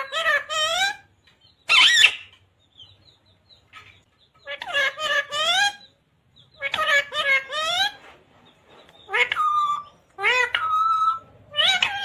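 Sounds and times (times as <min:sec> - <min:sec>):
parrot squawking: 0:00.0 - 0:01.1, 0:01.7 - 0:02.4, 0:04.4 - 0:05.9, 0:06.5 - 0:08.0, 0:09.1 - 0:12.0.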